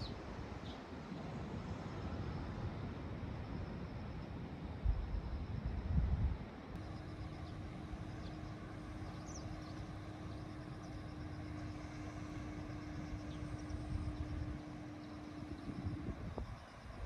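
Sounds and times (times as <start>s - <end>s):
steady low hum: 0.0s - 17.0s
wind rumbling on microphone: 4.8s - 6.6s, 12.9s - 17.0s.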